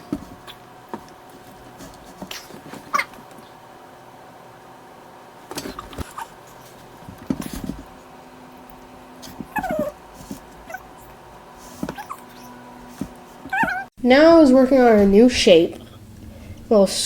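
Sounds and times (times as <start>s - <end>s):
cat meowing: 9.5s - 10.0s, 13.5s - 13.9s.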